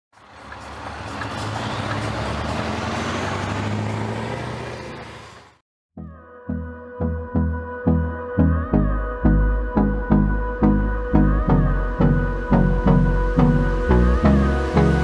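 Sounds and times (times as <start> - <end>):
road and air noise: 0.1 - 5.6
truck engine running: 0.1 - 5.6
electronic music with beat: 6.0 - 15.0.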